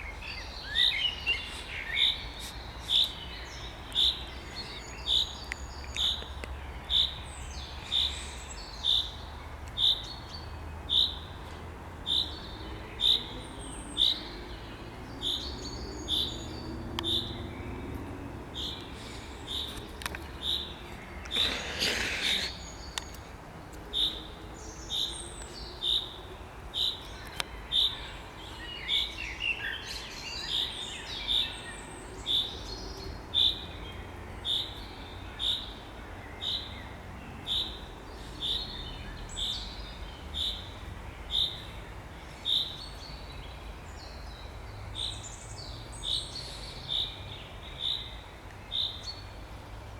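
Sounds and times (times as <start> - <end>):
birds warbling faintly: 12.0 - 49.9
bird short high call: 21.4 - 22.8.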